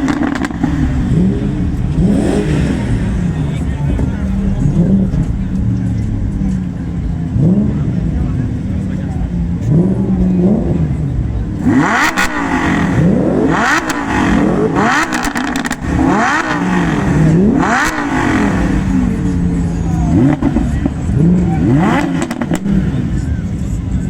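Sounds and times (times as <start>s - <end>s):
exhaust pops: 0.0s - 23.6s
sports car exhaust revving: 0.0s - 24.0s.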